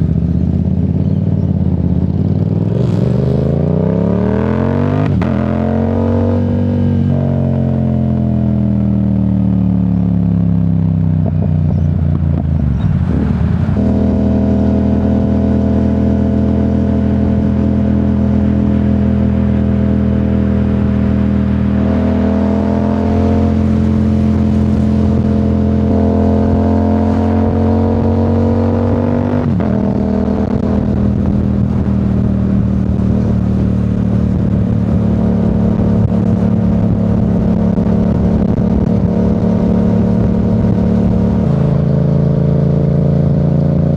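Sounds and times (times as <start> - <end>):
motorcycle engine cruising: 0.0 - 43.9.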